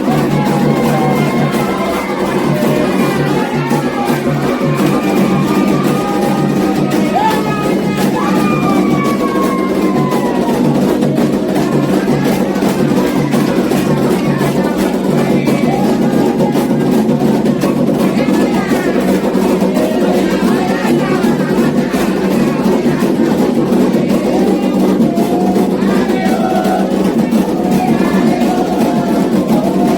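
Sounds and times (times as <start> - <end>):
group singing: 0.0 - 29.9
hand drums beating fast rhythm: 0.0 - 29.9.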